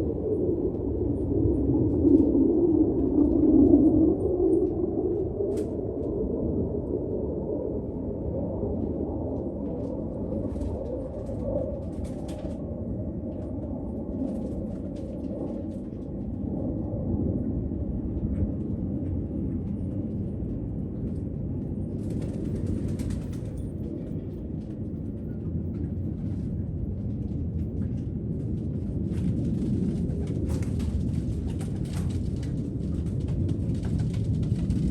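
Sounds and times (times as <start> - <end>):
low rumble: 0.0 - 34.9
pigeon wings flapping: 21.8 - 24.4, 28.6 - 34.9.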